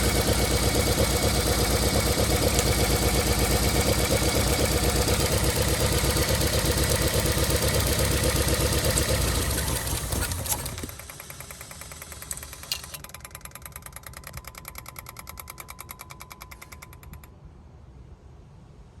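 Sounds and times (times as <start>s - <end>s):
car engine idling: 0.0s - 13.0s
fast even ticking: 0.0s - 17.3s
sharp clicks: 0.1s - 7.0s, 7.9s - 17.4s.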